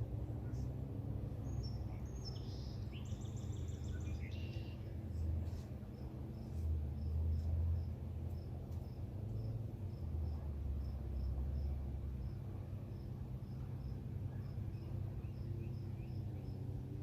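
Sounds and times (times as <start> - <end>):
low steady rumble: 0.0 - 17.0
crickets chirping: 6.0 - 17.0.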